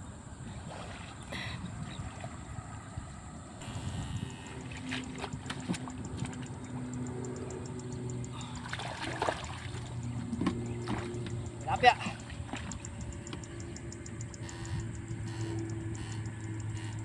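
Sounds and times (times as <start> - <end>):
steady low hum: 0.0 - 17.0
water: 0.0 - 17.0
wind: 0.0 - 17.0
short splashy clicks: 4.5 - 16.7
fast high ticking: 5.9 - 8.7, 11.3 - 17.0.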